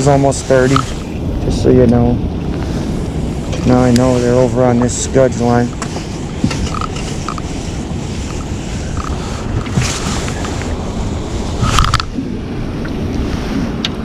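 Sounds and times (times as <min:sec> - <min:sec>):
wind rumbling across microphone: 0:00.0 - 0:14.0
loud rustle: 0:02.6 - 0:12.2.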